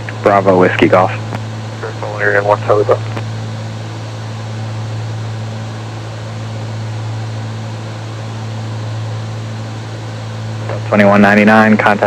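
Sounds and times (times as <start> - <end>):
aircraft engines droning: 0.0 - 12.0.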